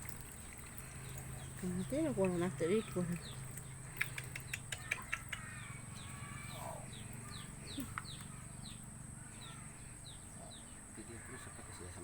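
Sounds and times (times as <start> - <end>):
small bird chirping: 0.0 - 12.0
sharp clicks: 3.6 - 5.5.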